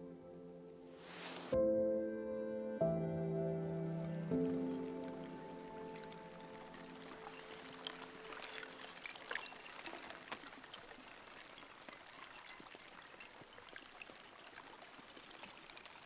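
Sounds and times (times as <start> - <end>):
small splashes and drips: 4.0 - 16.0
water lapping and trickling: 4.0 - 16.0.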